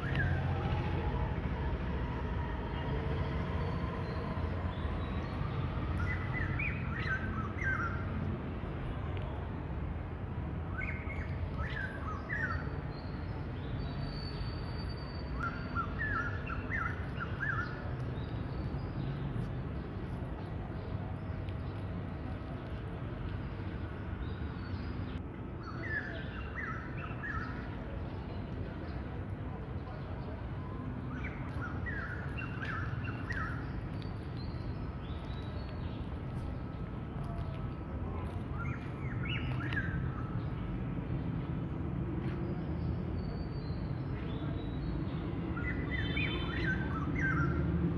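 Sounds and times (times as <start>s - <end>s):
small birds chirping: 31.1s - 41.4s.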